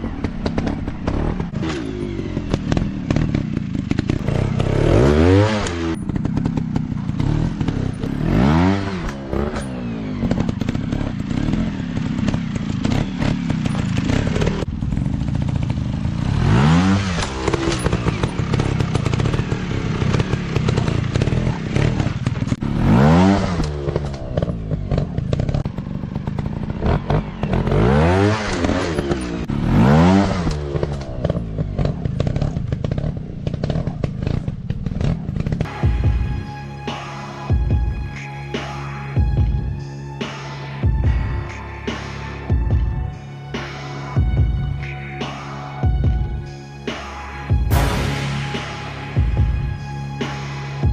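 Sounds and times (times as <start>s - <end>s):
dirt bike engines revving: 0.0s - 35.9s.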